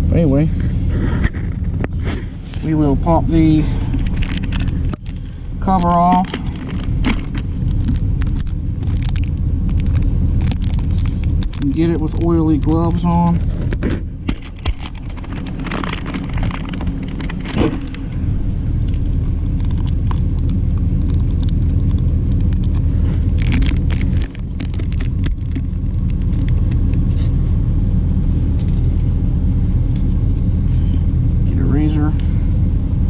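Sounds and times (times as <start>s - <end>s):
diesel truck engine idling: 0.0s - 33.0s
plastic packaging rattling: 4.0s - 18.0s, 18.8s - 27.1s.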